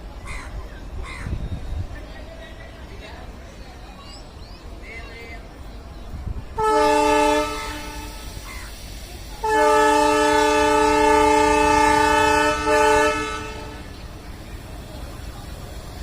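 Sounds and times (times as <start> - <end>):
locomotive horn blasts: 6.6 - 8.4, 9.4 - 14.0.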